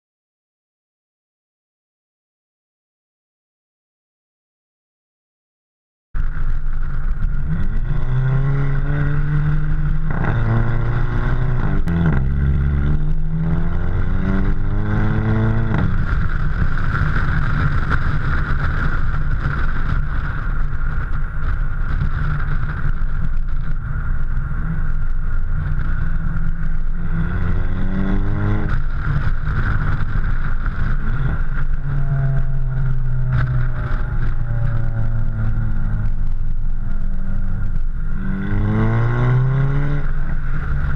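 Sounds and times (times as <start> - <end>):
car exhaust accelerating: 6.2 - 40.9
exhaust crack at gear changes: 6.2 - 40.9.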